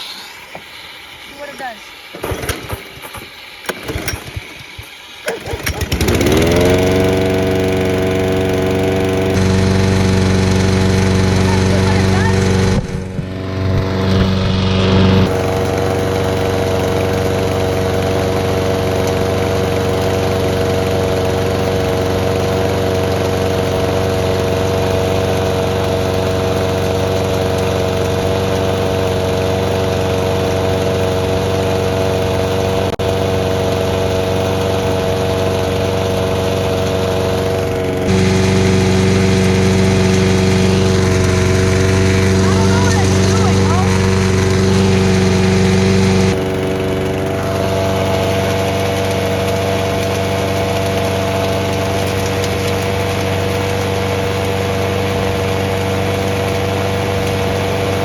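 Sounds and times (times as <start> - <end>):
small gasoline engine running: 0.0 - 58.0.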